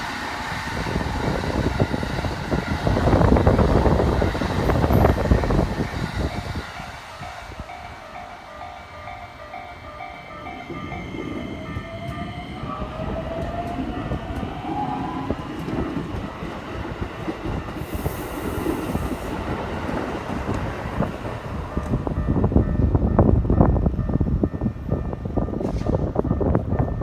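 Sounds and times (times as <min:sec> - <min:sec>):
wheels rumbling on rail: 0:00.0 - 0:27.0
level crossing alarm bell: 0:01.9 - 0:15.9.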